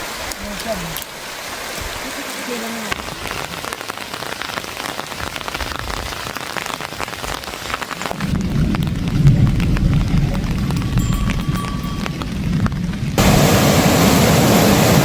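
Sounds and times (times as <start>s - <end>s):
rain drops ticking: 0.0s - 15.0s
low rumble: 8.2s - 14.4s.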